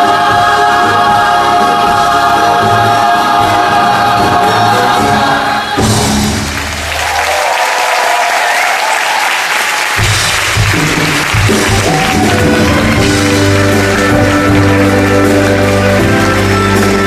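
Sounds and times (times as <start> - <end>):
chorus singing with orchestra: 0.0 - 6.6
audience applauding: 6.1 - 17.0.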